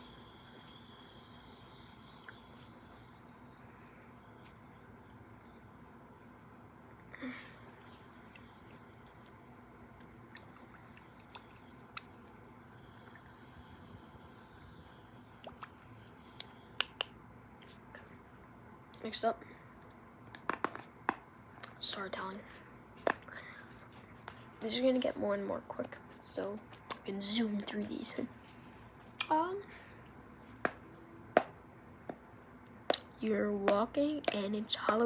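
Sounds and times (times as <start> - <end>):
spray bottle misting: 0.0 - 16.9.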